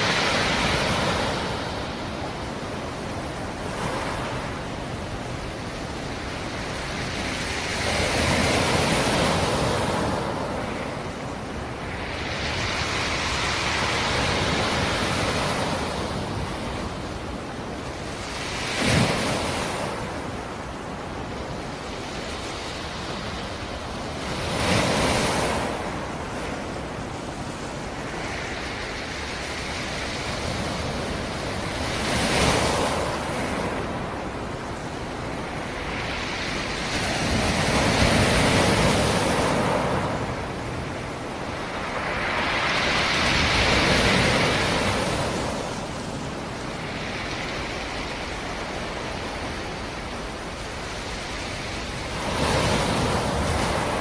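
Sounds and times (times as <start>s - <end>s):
waves breaking on shore: 0.0s - 54.0s
steady wash of water: 18.7s - 54.0s.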